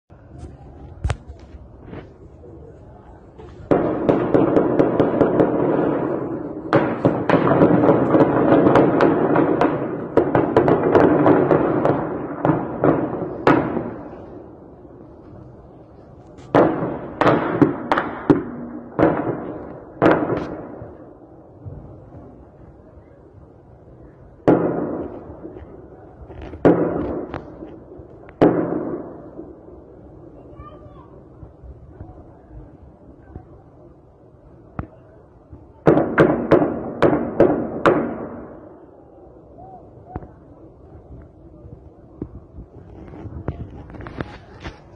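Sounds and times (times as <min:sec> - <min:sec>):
gunshots echoing: 0:03.7 - 0:14.2, 0:16.5 - 0:21.0, 0:35.9 - 0:38.6.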